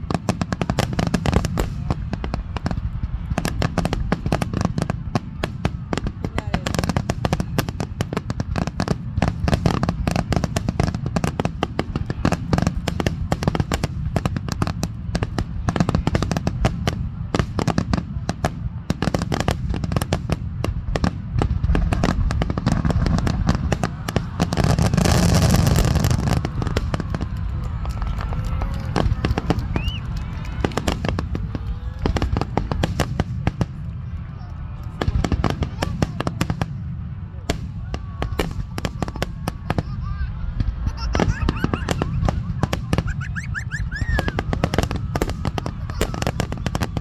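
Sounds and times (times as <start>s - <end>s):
fireworks bursting: 0.0s - 47.0s
fireworks crackling: 0.0s - 47.0s.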